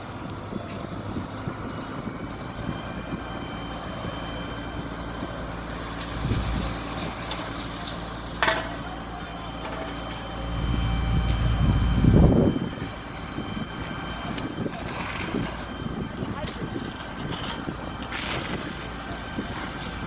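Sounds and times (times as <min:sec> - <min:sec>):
heavy truck engine running: 0:00.0 - 0:20.0
deep rumble: 0:09.6 - 0:20.0.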